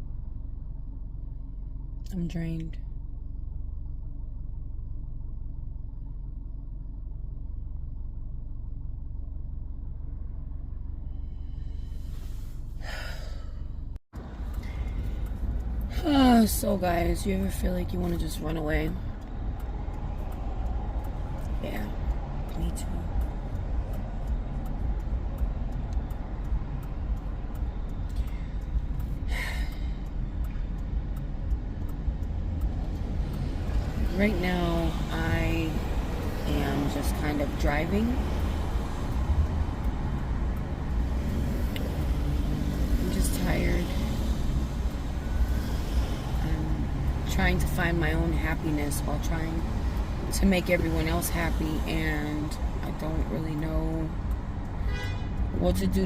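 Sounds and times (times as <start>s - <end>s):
car interior rumble: 0.0s - 56.0s
breathy sigh: 12.8s - 13.7s.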